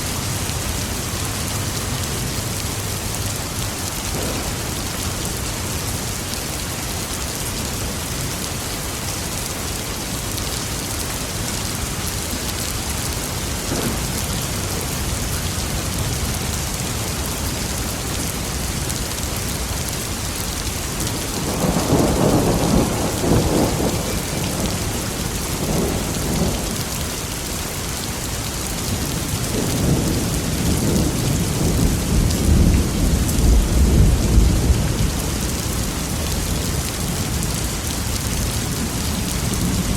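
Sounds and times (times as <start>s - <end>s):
heavy rain: 0.0s - 39.9s
thunder rumbling: 4.1s - 6.1s, 13.4s - 18.9s, 20.9s - 27.0s, 29.2s - 37.4s.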